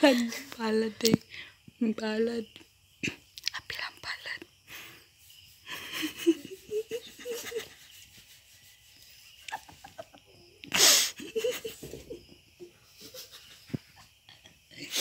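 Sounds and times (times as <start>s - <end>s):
person laughing wheezily: 5.7s - 8.0s, 9.4s - 12.0s
loud burst of breath: 10.7s - 11.2s.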